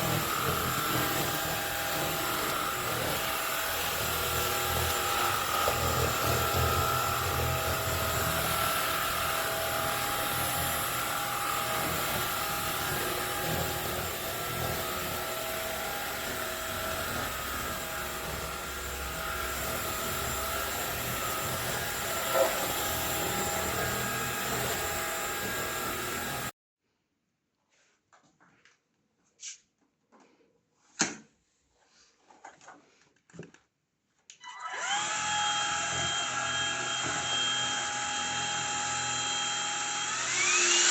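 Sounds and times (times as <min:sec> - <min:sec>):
stick vacuum cleaner running: 0:00.0 - 0:26.5, 0:34.7 - 0:40.9.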